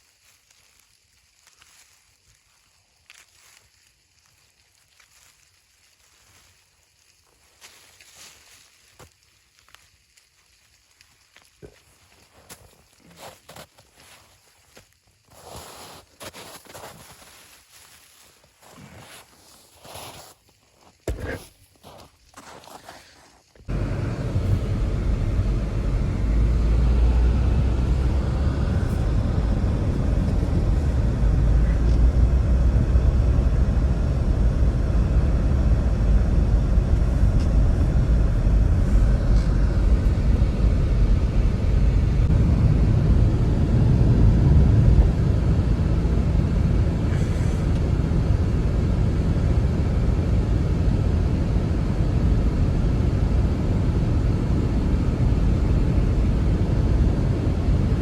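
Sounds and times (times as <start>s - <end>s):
strong blizzard wind: 23.7s - 58.0s.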